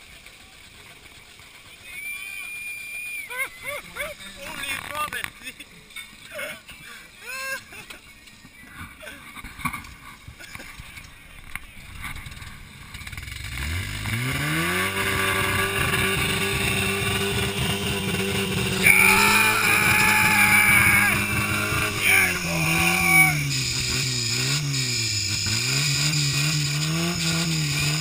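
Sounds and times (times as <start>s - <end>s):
car engine revving: 12.0s - 28.0s.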